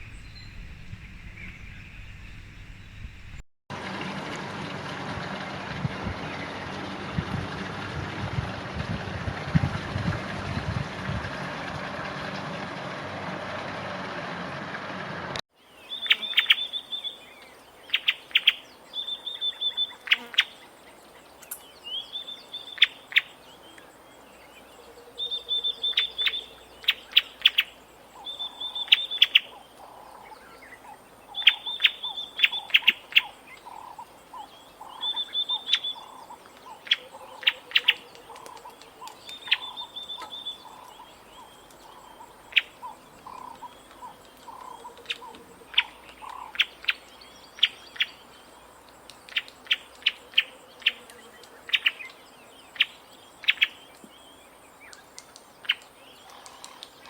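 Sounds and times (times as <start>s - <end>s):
steady rushing noise: 3.8s - 15.4s
bird calling: 15.6s - 57.0s.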